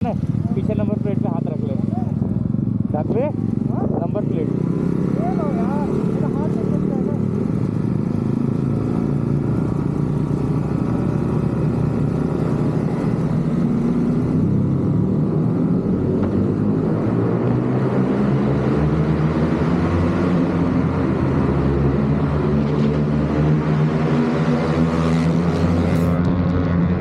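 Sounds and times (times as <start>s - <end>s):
motorcycle engine running: 0.0s - 17.4s.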